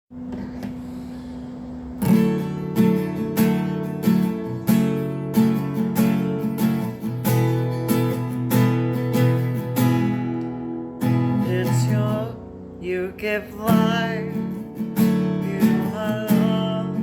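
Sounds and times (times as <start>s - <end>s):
acoustic guitar strumming: 0.4s - 17.0s.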